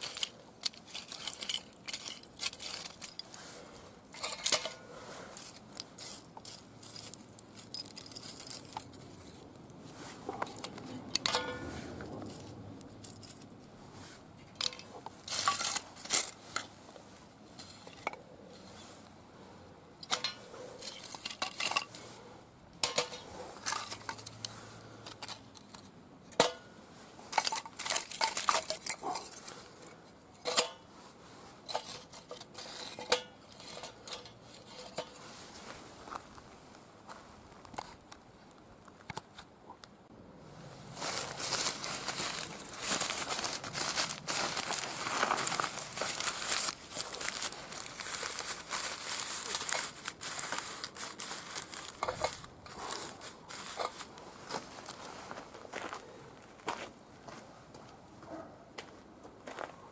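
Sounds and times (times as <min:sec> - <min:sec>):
metallic clinks and knocks: 0:00.0 - 0:03.4, 0:06.8 - 0:09.4, 0:10.4 - 0:13.6.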